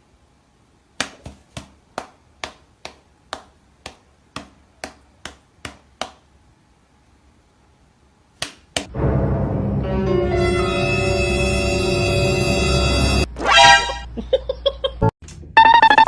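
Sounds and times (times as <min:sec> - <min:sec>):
music: 0:08.9 - 0:13.3.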